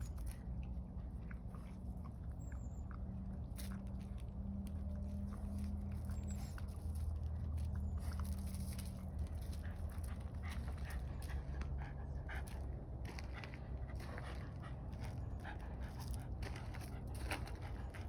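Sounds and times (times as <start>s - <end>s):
dog snuffling and mouth clicks: 0.0s - 11.7s.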